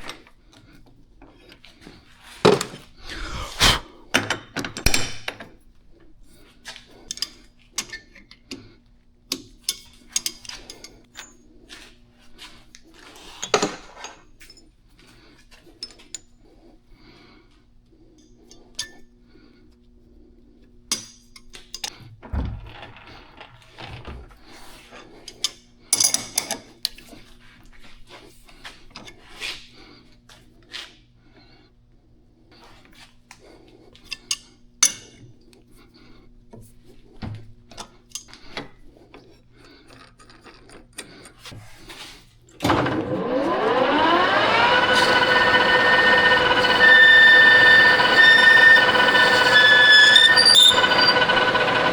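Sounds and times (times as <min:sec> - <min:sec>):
lathe motor whine: 0:42.6 - 0:51.9.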